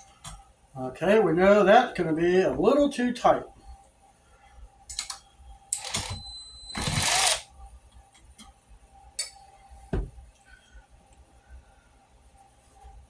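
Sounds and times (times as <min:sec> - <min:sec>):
dull thump: 0:09.9 - 0:10.2.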